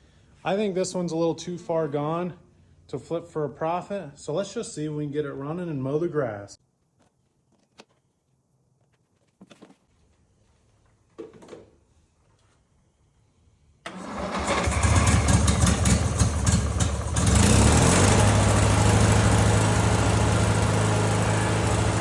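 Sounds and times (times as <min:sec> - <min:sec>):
lawnmower engine cranking and running: 0:13.8 - 0:22.0.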